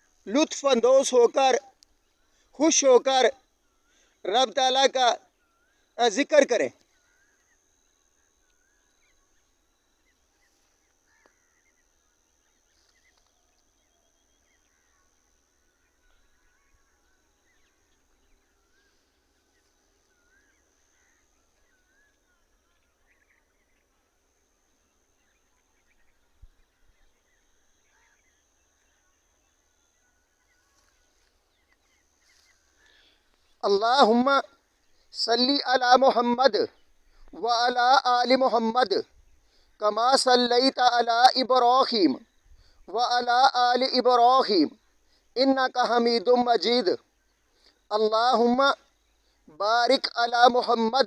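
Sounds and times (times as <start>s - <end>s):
faint birdsong: 0.0s - 51.0s
faint high-pitched whine: 0.0s - 51.0s.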